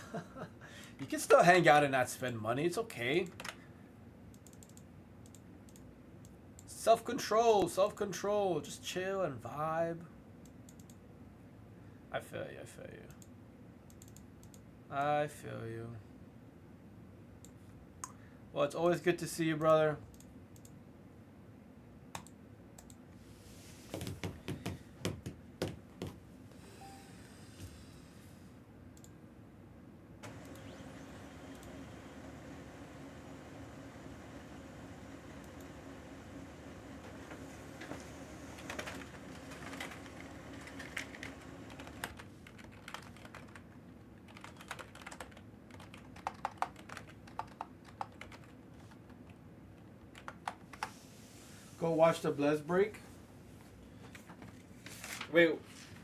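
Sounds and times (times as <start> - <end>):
typing on computer keyboard: 38.7 - 43.7, 44.3 - 49.3, 50.1 - 50.9.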